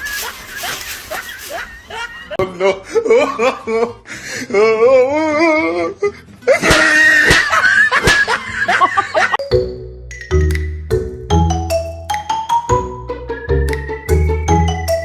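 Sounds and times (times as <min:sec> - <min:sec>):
laughter: 0:00.0 - 0:04.1, 0:06.4 - 0:09.4
light musical tune: 0:09.4 - 0:15.0.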